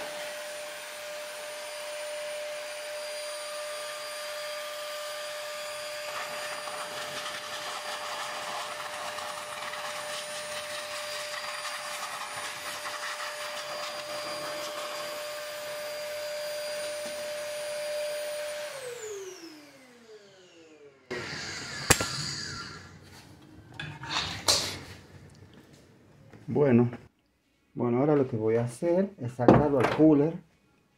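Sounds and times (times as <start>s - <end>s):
vacuum cleaner motor whining: 0.0s - 24.1s.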